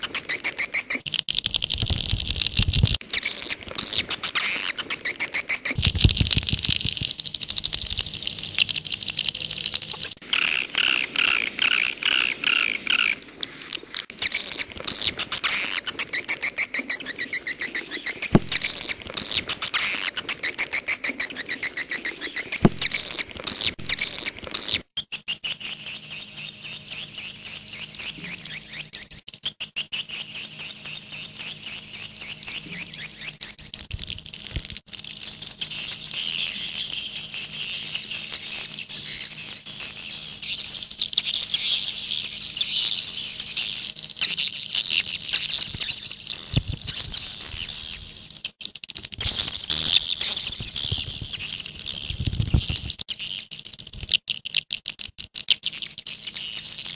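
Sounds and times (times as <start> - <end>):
swiftlets twittering: 0.0 - 24.4.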